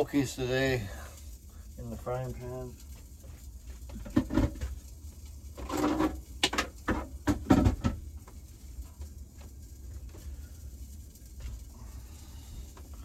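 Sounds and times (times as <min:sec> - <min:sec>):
objects knocking and clattering: 0:03.0 - 0:10.3.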